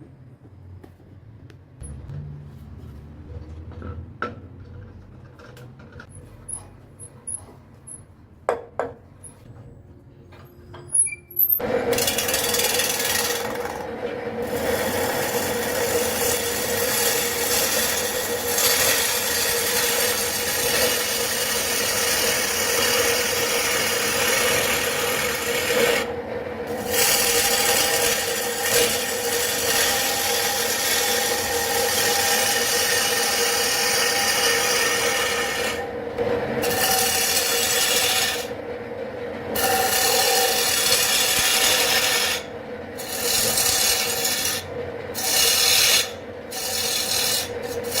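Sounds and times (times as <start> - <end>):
tool rasping on spinning wood: 11.9 - 13.8, 14.4 - 26.1, 26.7 - 35.8, 39.6 - 48.0
wood lathe humming: 11.9 - 13.8, 14.4 - 26.1, 26.8 - 35.9, 39.6 - 44.6, 45.2 - 48.0.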